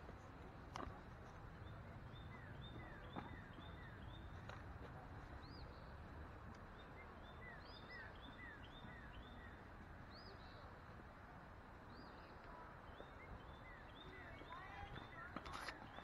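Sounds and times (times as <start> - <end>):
birds chirping: 0.8 - 10.9, 11.8 - 16.0.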